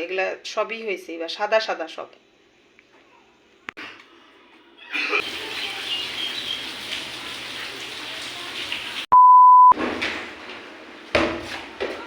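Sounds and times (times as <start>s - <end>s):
loud pure beep: 9.1s - 9.8s.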